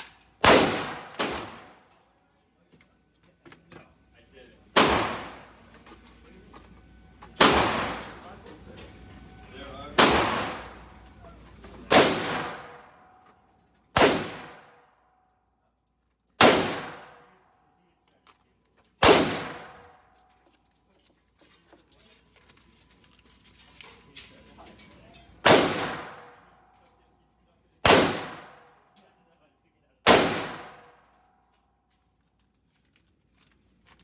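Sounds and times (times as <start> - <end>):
gunshots with echo: 0.4 - 1.7, 4.8 - 5.5, 7.4 - 8.2, 10.0 - 10.8, 11.9 - 13.0, 14.0 - 14.8, 16.4 - 17.3, 19.0 - 19.8, 25.4 - 26.4, 27.8 - 28.6, 30.1 - 30.9.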